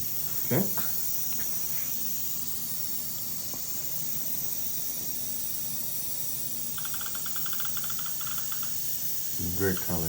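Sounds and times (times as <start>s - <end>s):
steady hiss: 0.0s - 10.0s
short electronic beeps: 6.8s - 8.7s.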